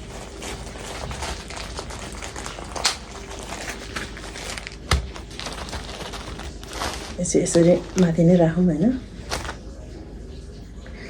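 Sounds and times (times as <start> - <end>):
light rustling: 0.3 - 8.4.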